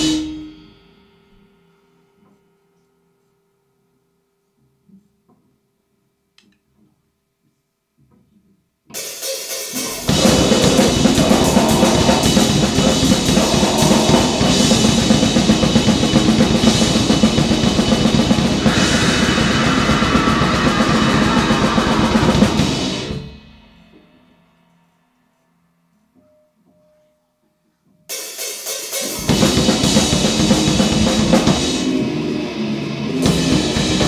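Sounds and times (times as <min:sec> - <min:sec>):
drums and cymbals: 0:00.0 - 0:01.1, 0:08.9 - 0:24.2, 0:28.1 - 0:34.0
noise band playing: 0:09.7 - 0:23.6, 0:29.0 - 0:34.0.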